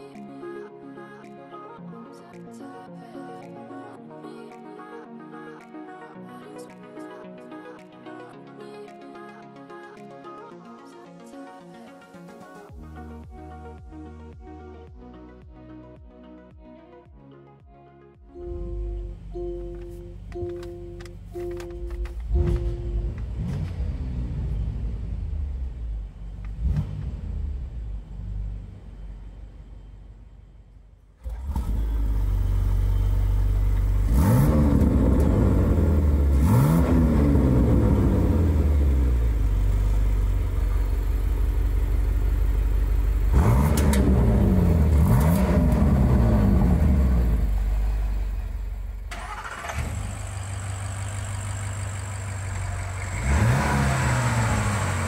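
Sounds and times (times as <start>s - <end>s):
engine revving blips: 18.4s - 41.8s, 43.2s - 55.0s
car engine starting and idling: 18.4s - 55.0s.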